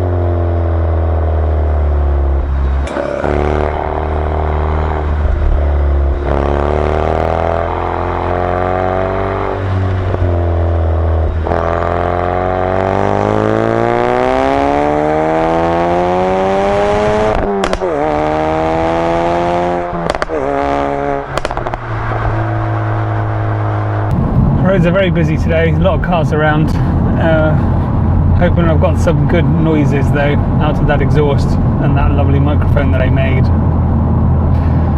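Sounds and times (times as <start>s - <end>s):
car exhaust revving: 0.0s - 34.9s
exhaust pops and crackles: 16.8s - 18.3s, 19.6s - 22.2s.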